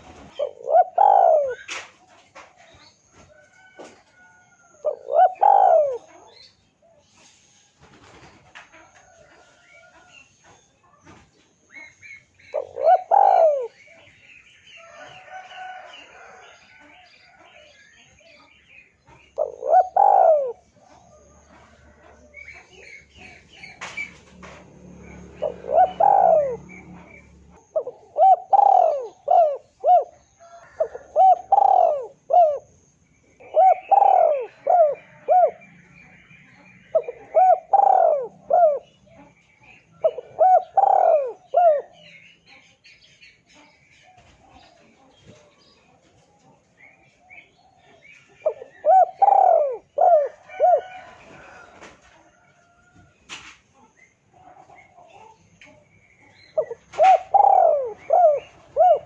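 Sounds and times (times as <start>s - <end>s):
doves cooing: 0.0s - 7.1s, 7.8s - 14.2s, 14.8s - 42.2s, 46.6s - 59.0s
small birds chirping: 0.0s - 59.0s.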